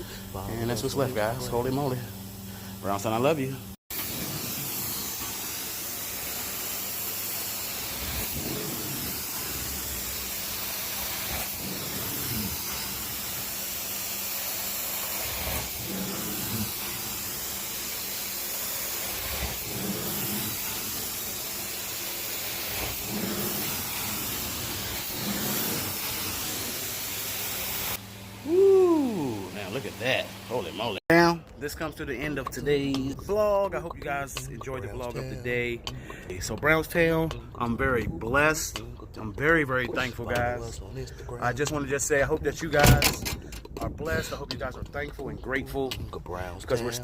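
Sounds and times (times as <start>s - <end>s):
carpet-cleaning machine hissing: 0.0s - 31.0s.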